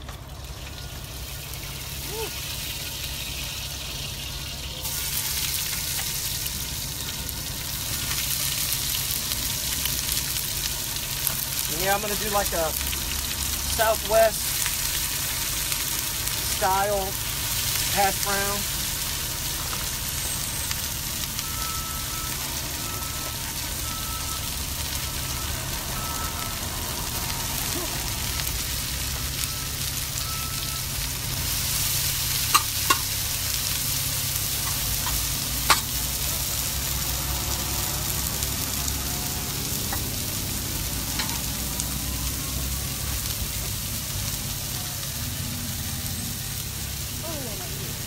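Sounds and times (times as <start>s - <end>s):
food sizzling in a pan: 0.0s - 48.0s.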